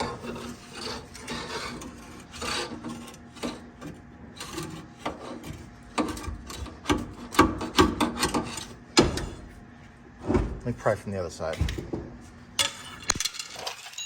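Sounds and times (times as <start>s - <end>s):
steel part scraping against metal: 0.0s - 3.8s.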